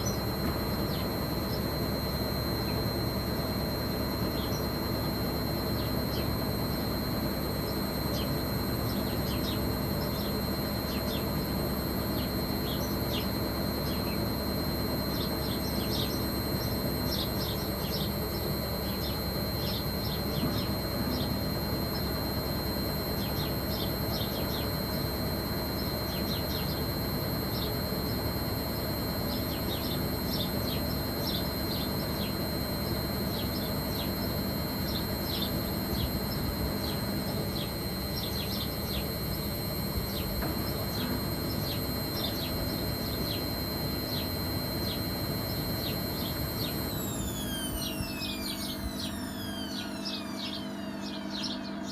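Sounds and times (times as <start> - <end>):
washing machine motor whine: 0.0 - 51.9
short high chirps: 46.9 - 51.3.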